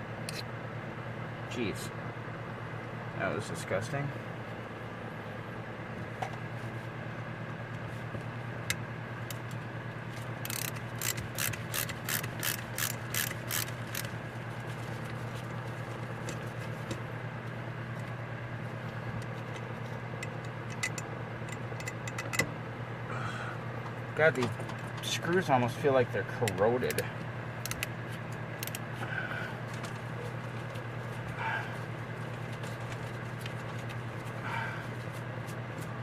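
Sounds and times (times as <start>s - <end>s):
steady low hum: 0.0s - 36.0s
ratchet tool clicking: 10.4s - 14.1s, 27.6s - 27.9s, 28.6s - 28.8s.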